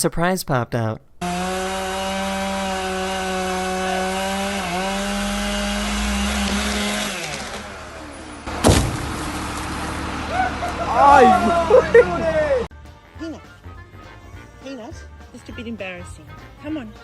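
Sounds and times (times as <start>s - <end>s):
chainsaw cutting wood: 1.2s - 11.5s
sharp knock: 8.6s - 9.1s.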